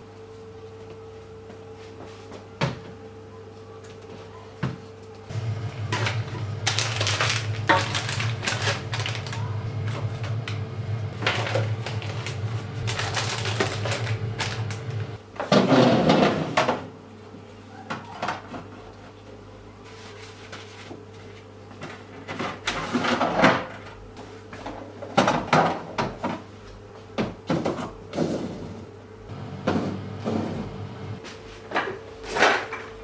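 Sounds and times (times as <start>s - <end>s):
faint low hum: 5.3s - 15.2s
things scraping and knocking: 5.3s - 16.8s, 29.3s - 31.2s.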